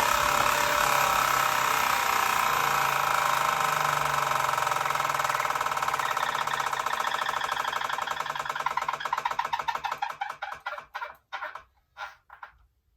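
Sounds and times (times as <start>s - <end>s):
flywheel whirring spinning down: 0.0s - 12.5s.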